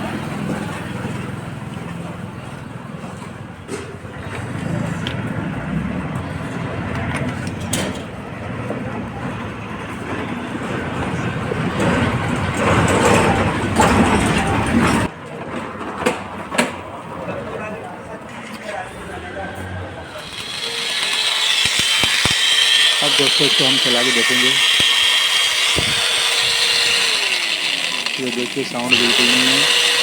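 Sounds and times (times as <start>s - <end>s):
clicks and knocks of parts: 20.2s - 23.6s.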